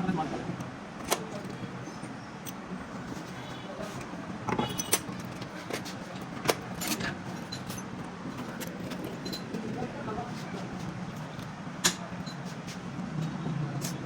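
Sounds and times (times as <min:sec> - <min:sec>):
metal tools clinking: 0:04.5 - 0:09.9.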